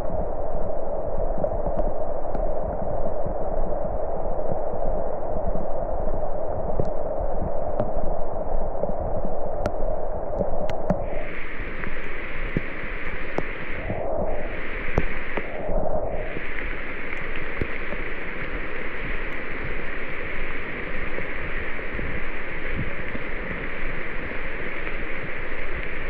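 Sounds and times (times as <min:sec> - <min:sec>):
rain drops ticking: 0:10.4 - 0:15.6, 0:16.2 - 0:26.0
steady rain: 0:10.5 - 0:26.0
higher-pitched hiss: 0:10.6 - 0:26.0.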